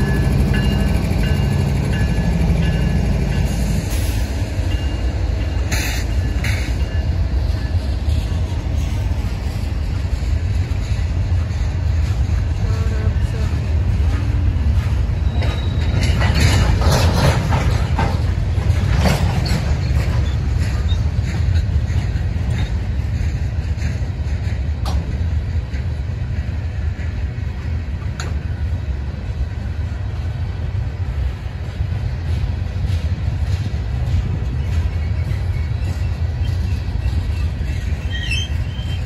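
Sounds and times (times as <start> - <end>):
wheels clicking over rail joints: 0.0 - 28.6
freight cars rumbling on rails: 0.0 - 39.0.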